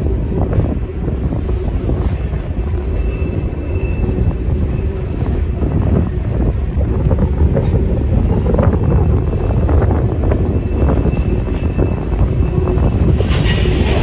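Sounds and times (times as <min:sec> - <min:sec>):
steel wheels rumbling on rail: 0:00.0 - 0:14.0
train cars clanking: 0:00.0 - 0:14.0
faint high wheel squeal: 0:02.4 - 0:05.6, 0:08.4 - 0:14.0.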